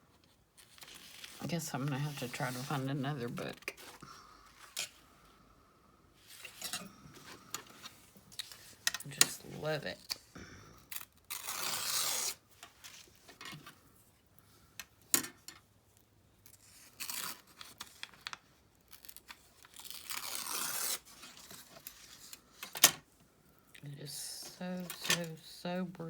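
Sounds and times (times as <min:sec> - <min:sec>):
paper rustling: 0:00.6 - 0:04.8
paper page tearing: 0:11.0 - 0:12.4, 0:16.6 - 0:18.1, 0:18.9 - 0:21.7.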